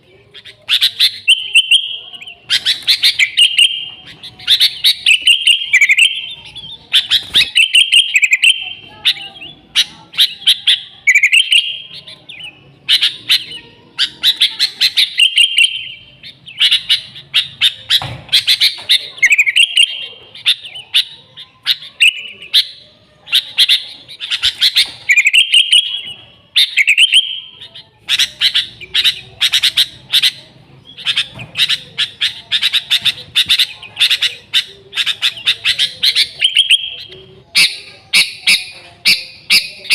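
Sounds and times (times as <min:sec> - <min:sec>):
bulbul chirping and warbling: 0:00.0 - 0:39.9.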